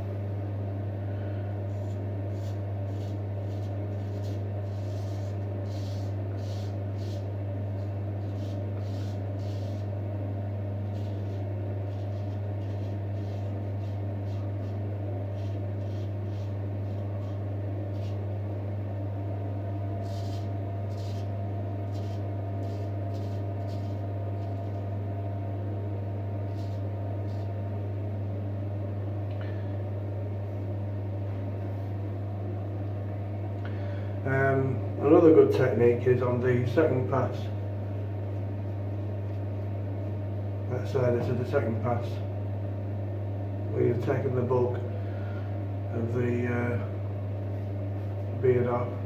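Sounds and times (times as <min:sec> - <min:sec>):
steady low room hum: 0:00.0 - 0:49.0
razor scraping beard stubble: 0:01.7 - 0:10.0, 0:10.7 - 0:18.3, 0:20.0 - 0:24.9, 0:26.4 - 0:27.6.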